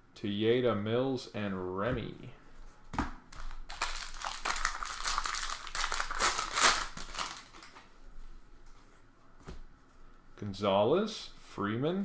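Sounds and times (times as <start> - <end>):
foil wrapper crinkling: 3.4 - 7.9.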